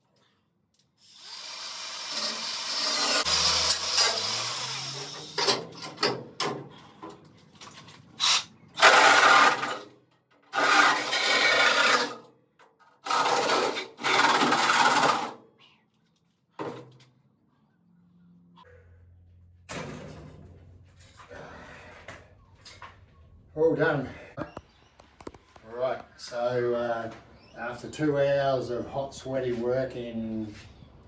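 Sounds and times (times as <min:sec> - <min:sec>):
power tool cutting steel: 0:01.0 - 0:05.8, 0:08.2 - 0:09.9, 0:10.5 - 0:12.2, 0:13.0 - 0:15.4.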